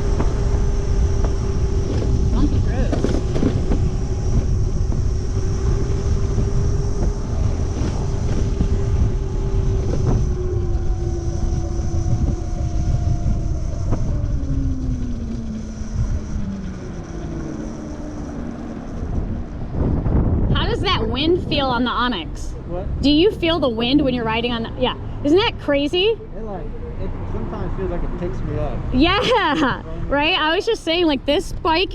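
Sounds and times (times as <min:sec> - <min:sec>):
electric motor whine: 0:00.0 - 0:22.3
wind buffeting microphone: 0:00.0 - 0:31.9.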